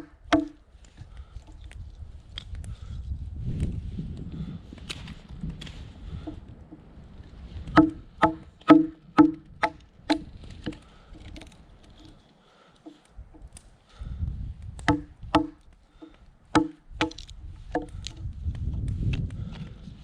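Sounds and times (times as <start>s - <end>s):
wind rumble on microphone: 0.2s - 12.1s, 13.1s - 15.7s, 16.3s - 20.0s
baton knocking on knife spine: 14.9s - 15.6s.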